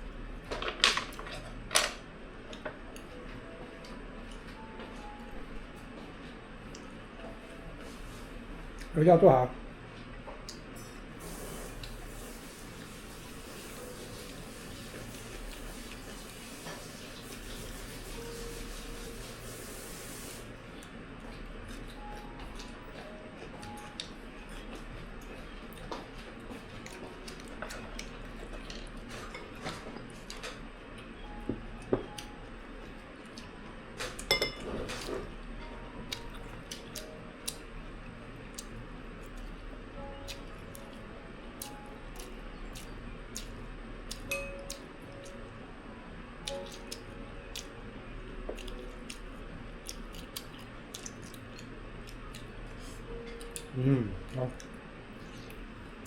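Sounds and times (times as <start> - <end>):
quiet chewing: 48.5 - 55.6.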